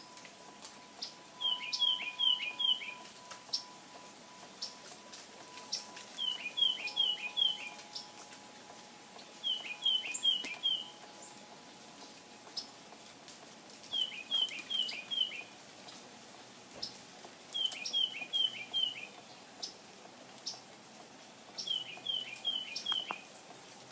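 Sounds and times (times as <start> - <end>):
bird chip calls: 1.0 - 3.7, 5.5 - 8.2, 9.2 - 11.4, 13.9 - 15.5, 17.6 - 19.8, 21.6 - 23.3
songbird whistled phrase: 1.4 - 3.1.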